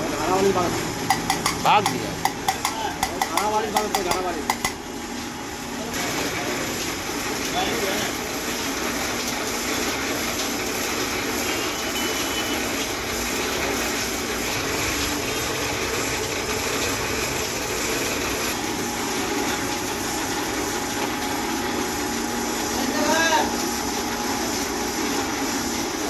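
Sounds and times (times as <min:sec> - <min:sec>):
mechanical hum with hiss: 0:00.0 - 0:26.0.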